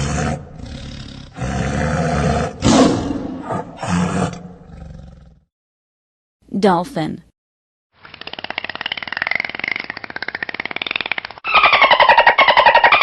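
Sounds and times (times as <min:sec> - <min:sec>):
tiger roaring: 0:00.0 - 0:05.4.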